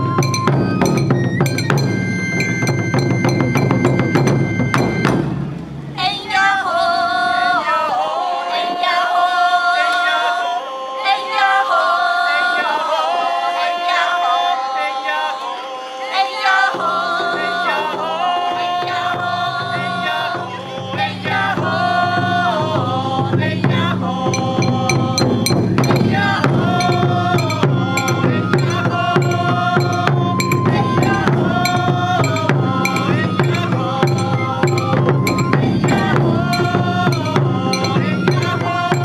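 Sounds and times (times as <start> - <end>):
ringing metal percussion: 0.0 - 5.2, 24.3 - 39.0
high solo flute melody: 0.0 - 5.4, 24.4 - 39.0
taiko drums: 0.0 - 5.6, 20.8 - 39.0
low steady drum layer: 0.0 - 6.0, 22.8 - 39.0.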